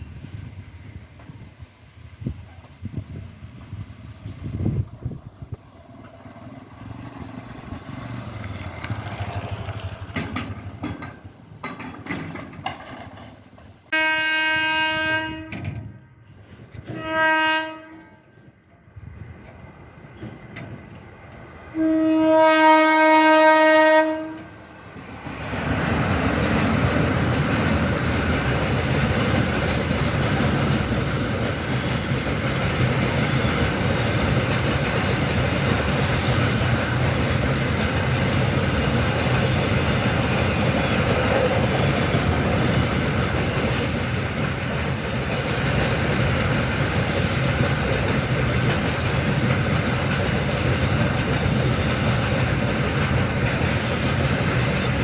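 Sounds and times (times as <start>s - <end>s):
train wagons passing: 0.0s - 55.0s
train horn blasts: 13.9s - 18.6s, 21.7s - 24.6s.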